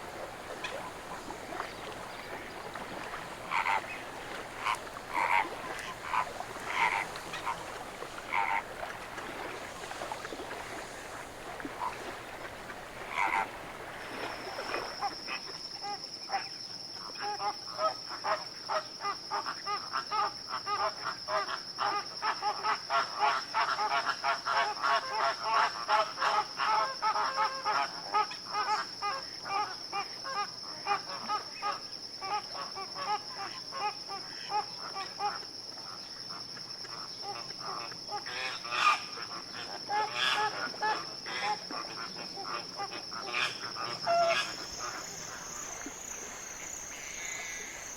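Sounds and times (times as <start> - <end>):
flock of birds calling: 0.0 - 14.9.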